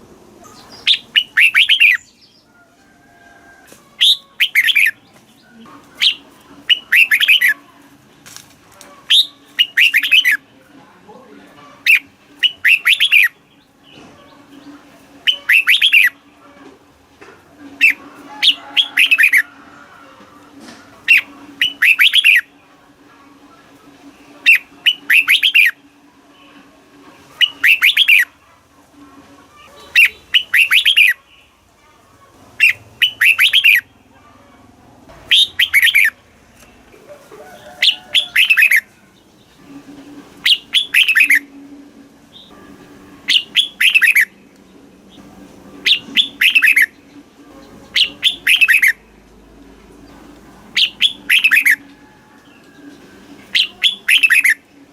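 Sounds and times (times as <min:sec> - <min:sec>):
bulbul singing: 0:00.4 - 0:02.6, 0:04.0 - 0:07.6, 0:09.0 - 0:10.5, 0:11.8 - 0:16.4, 0:17.7 - 0:19.4, 0:21.0 - 0:22.7, 0:24.2 - 0:26.5, 0:27.3 - 0:28.4, 0:29.7 - 0:31.6, 0:32.6 - 0:34.2, 0:35.1 - 0:36.8, 0:37.5 - 0:54.9.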